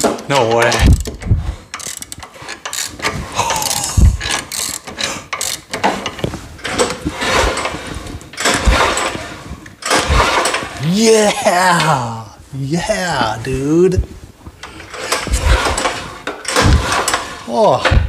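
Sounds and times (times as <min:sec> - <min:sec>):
recoil pull cord yanked: 0:00.0 - 0:10.8, 0:14.6 - 0:18.0.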